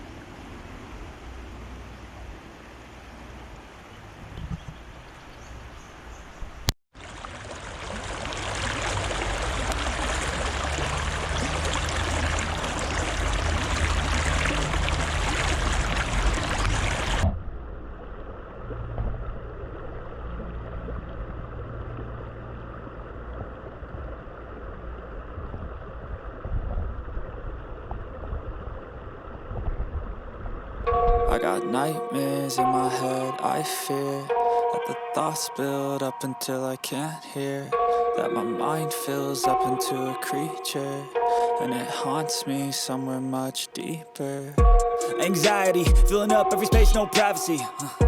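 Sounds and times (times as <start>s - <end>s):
river water rushing: 7.0s - 17.2s.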